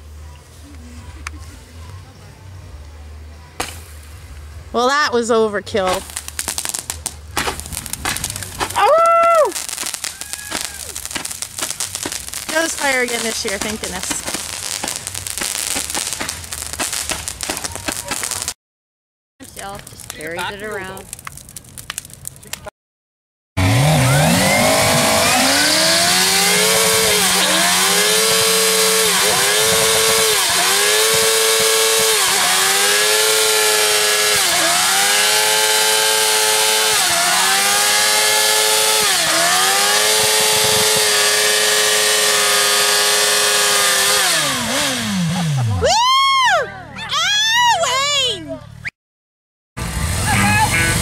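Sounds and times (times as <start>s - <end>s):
motorcycle engine revving: 23.6s - 45.9s.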